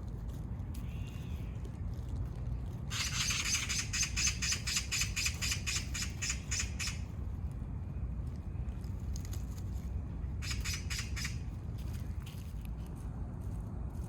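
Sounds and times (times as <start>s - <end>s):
steady low rumble: 0.0s - 14.0s
animal rattling chatter: 2.9s - 7.1s, 10.4s - 11.5s.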